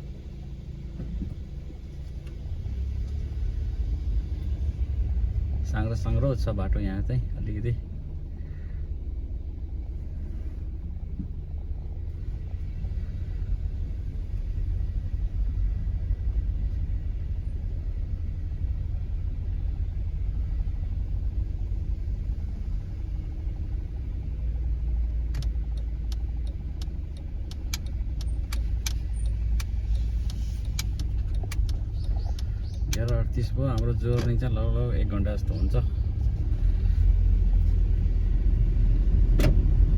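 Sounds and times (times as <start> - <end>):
engine and road noise in car: 0.0 - 39.9
sharp irregular clicks: 25.3 - 34.5.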